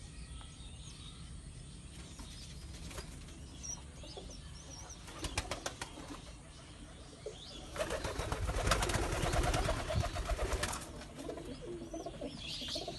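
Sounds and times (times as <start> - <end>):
pigeons cooing: 4.2 - 12.9.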